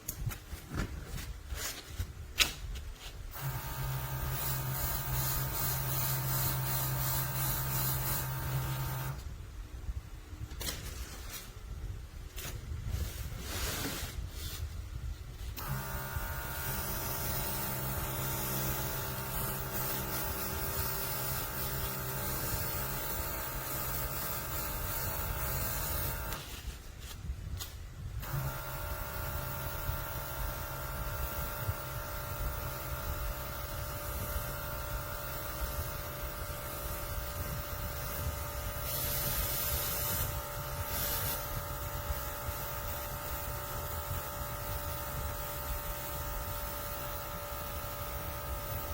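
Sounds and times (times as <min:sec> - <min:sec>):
air hissing: 0:03.3 - 0:09.3, 0:15.5 - 0:26.6, 0:28.2 - 0:48.9
compressor motor running: 0:03.3 - 0:09.3, 0:15.5 - 0:26.7, 0:28.2 - 0:48.9.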